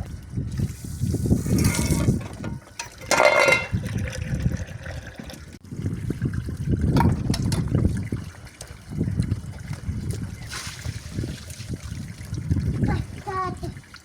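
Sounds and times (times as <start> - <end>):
water running over dishes: 0.0 - 14.0
dishes clattering: 1.6 - 4.2.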